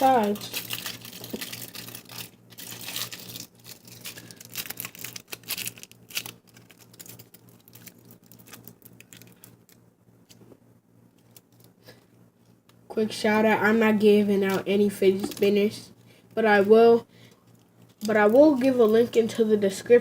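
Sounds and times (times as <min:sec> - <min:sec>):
aluminum foil crinkling: 0:00.0 - 0:09.8, 0:14.4 - 0:15.7.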